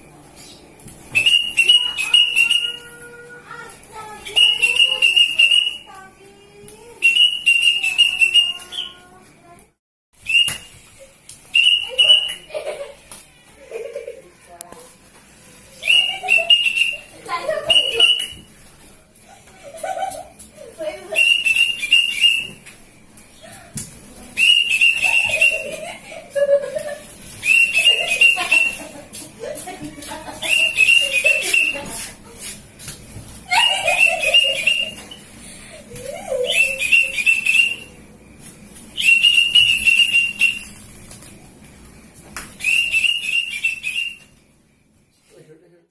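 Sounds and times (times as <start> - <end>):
high trilled whistling: 1.1 - 3.1, 4.2 - 6.0, 7.0 - 9.1, 10.2 - 10.9, 11.5 - 12.5, 15.7 - 18.5, 21.1 - 22.7, 24.4 - 25.9, 27.4 - 28.9, 30.4 - 31.9, 33.5 - 35.3, 36.3 - 38.0, 38.9 - 40.9, 42.6 - 44.4.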